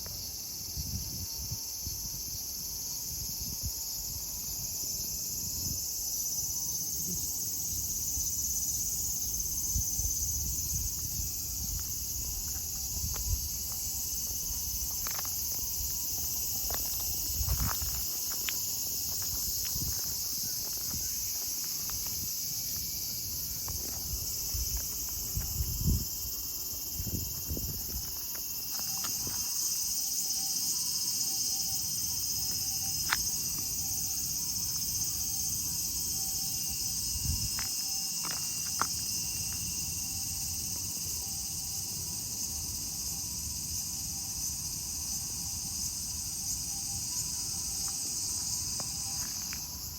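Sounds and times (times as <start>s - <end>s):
cicadas chorus: 0.0s - 49.9s.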